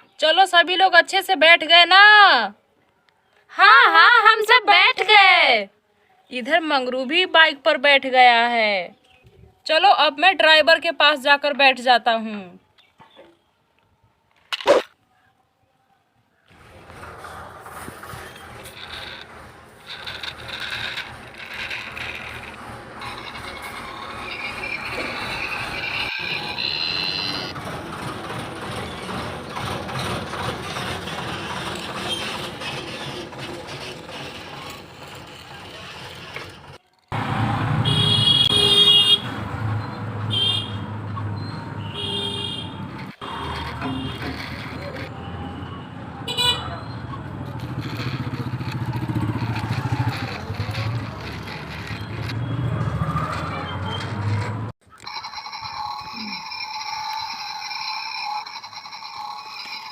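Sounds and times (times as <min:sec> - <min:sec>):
truck engine rattling: 0:16.6 - 0:39.8, 0:41.3 - 0:59.9
high steady tone: 0:54.9 - 0:59.9.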